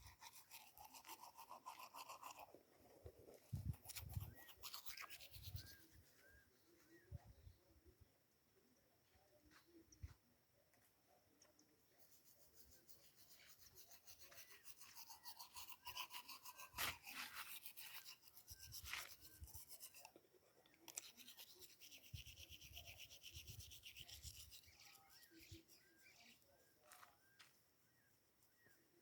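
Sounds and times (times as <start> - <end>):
toothbrush scrubbing teeth: 0.0 - 2.5, 3.8 - 5.7, 14.2 - 20.2, 20.9 - 26.2.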